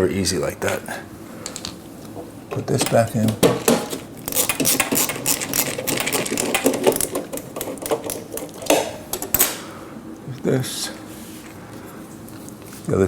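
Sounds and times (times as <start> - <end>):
screw rattling into metal cover: 2.5 - 9.6.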